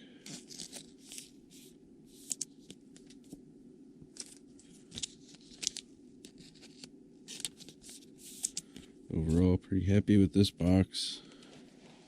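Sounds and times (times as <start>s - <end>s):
low background hum: 0.0s - 12.0s
plastic sleeves rustling: 0.2s - 3.4s, 4.1s - 8.8s.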